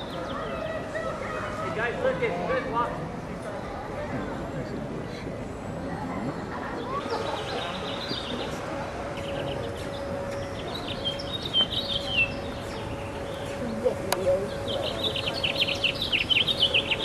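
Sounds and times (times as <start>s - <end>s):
small birds chirping: 6.8s - 17.0s.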